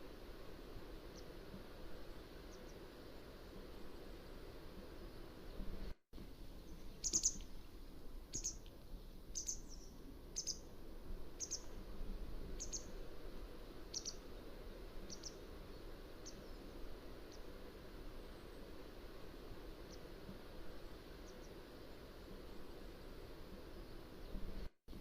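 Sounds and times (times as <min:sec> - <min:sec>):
low background hiss: 0:00.0 - 0:25.0
bird calling sharply: 0:07.0 - 0:07.4.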